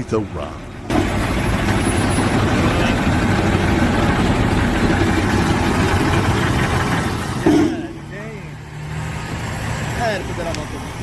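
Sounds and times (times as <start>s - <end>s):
heavy machine engine rumbling: 0.0s - 11.0s.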